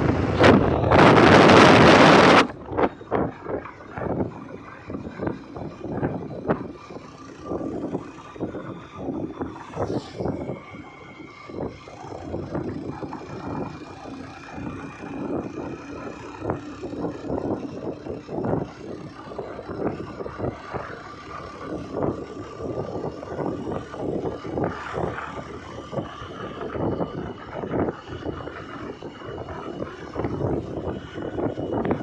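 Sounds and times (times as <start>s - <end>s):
vehicle engine and road rumble: 0.0s - 32.0s.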